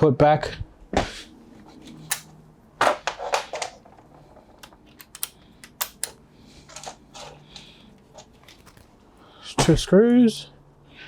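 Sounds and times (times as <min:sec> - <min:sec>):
hands handling screws and parts: 0:01.9 - 0:09.1.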